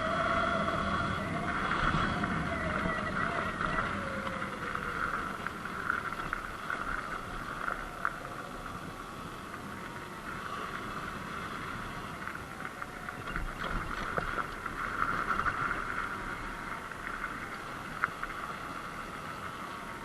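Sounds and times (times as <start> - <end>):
electric motor whining: 0.0 - 14.7
road noise rushing and rumbling: 0.0 - 20.0.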